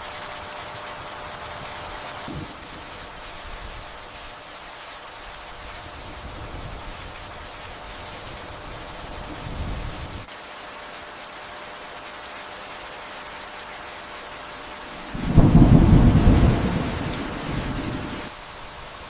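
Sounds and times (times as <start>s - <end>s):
steady rain hiss: 0.0s - 19.0s
thunder rumbling: 1.4s - 4.0s, 5.7s - 10.2s, 15.0s - 18.3s.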